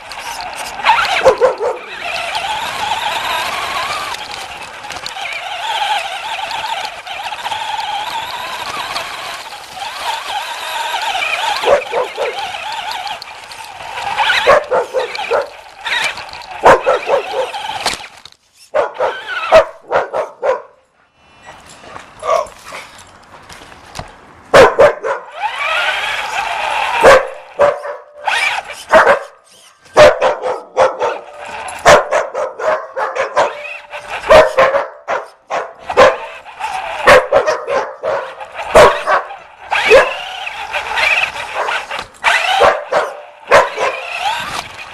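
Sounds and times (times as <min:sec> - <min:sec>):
toy car electric motor whine: 0:00.0 - 0:19.8, 0:25.3 - 0:30.4, 0:31.0 - 0:32.1, 0:33.2 - 0:34.7, 0:35.8 - 0:37.5, 0:38.1 - 0:44.9
puppy barking and yipping: 0:00.1 - 0:18.0, 0:18.6 - 0:20.8, 0:24.6 - 0:44.6.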